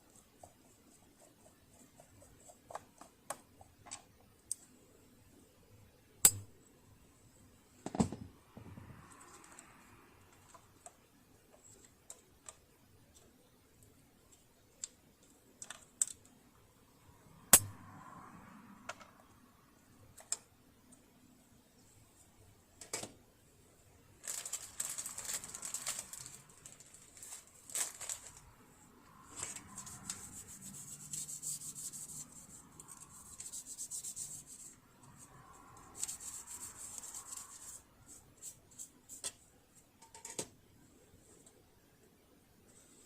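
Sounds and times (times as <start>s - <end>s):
clicks of tools and metal parts: 6.2s - 6.5s, 40.0s - 40.5s.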